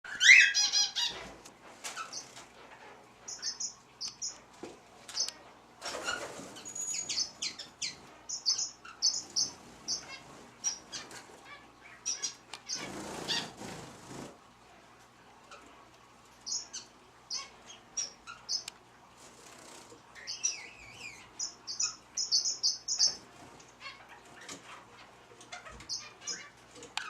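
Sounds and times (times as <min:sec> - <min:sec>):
birds chirping: 0:00.0 - 0:27.0
wings flapping: 0:05.0 - 0:07.2, 0:12.7 - 0:14.4.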